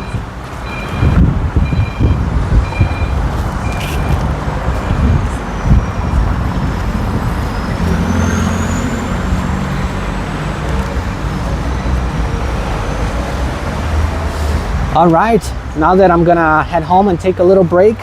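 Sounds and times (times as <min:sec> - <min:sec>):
loud engine: 0:00.0 - 0:14.9
traffic rumble: 0:00.0 - 0:18.0.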